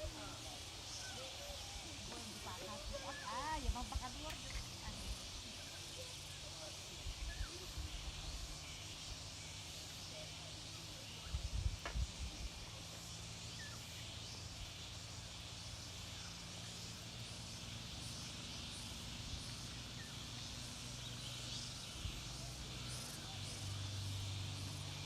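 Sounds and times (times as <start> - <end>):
faint bird chirps: 0.0 - 25.0
steady high hiss: 0.0 - 25.0
wind rumbling on microphone: 11.3 - 12.6.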